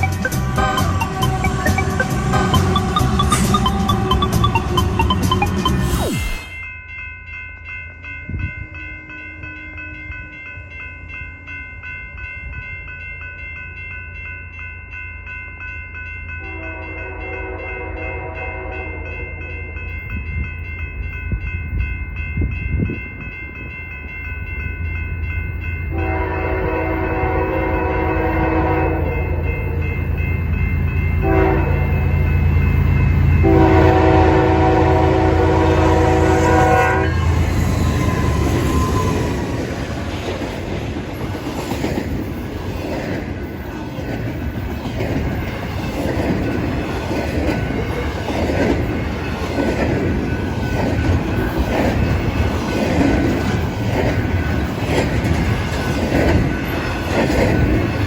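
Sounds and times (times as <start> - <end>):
diesel locomotive engine rumble: 0.0 - 6.2, 16.4 - 58.0
steady high ringing: 0.0 - 39.4
train air horn: 16.4 - 19.2, 25.9 - 29.8, 31.2 - 32.0, 33.4 - 39.2.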